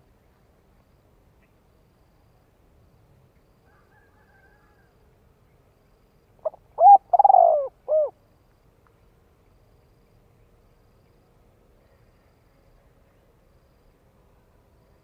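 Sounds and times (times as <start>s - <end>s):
dove cooing: 6.4s - 8.2s.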